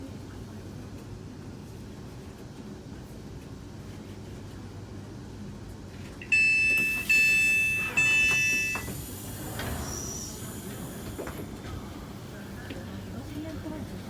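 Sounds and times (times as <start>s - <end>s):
high electronic door warning beeps: 6.2s - 10.5s
sliding door opening: 6.8s - 11.8s.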